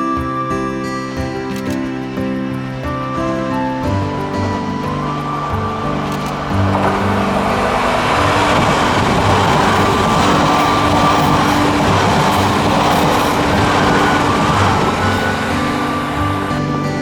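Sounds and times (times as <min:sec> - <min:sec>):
faint background music: 0:00.0 - 0:17.0
train wheel and air rush: 0:04.1 - 0:17.0.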